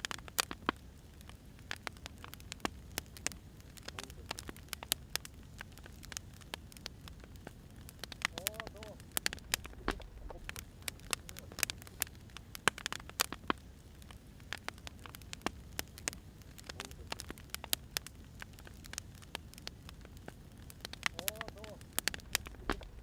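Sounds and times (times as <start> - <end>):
firewood crackling and popping: 0.0 - 23.0
low steady rumble: 2.7 - 12.6, 21.8 - 23.0.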